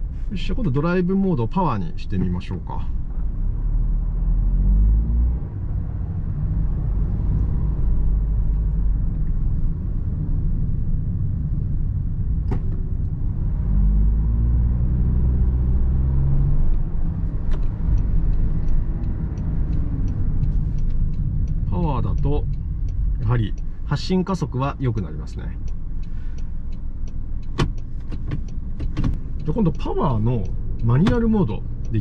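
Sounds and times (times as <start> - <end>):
road rumble: 0.0 - 32.0
light regular ticks: 16.6 - 32.0
sharp click: 25.6 - 31.4.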